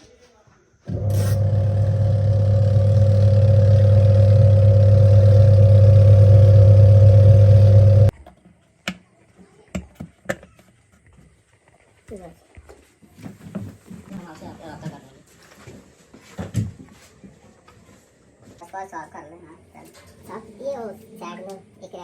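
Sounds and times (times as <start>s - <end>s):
electric machine humming: 0.9s - 8.1s.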